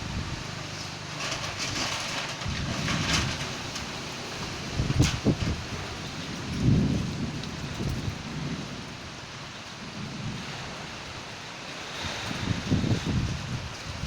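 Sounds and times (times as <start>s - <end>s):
heavy rain: 0.0s - 14.0s
thunder rolling: 1.2s - 11.3s.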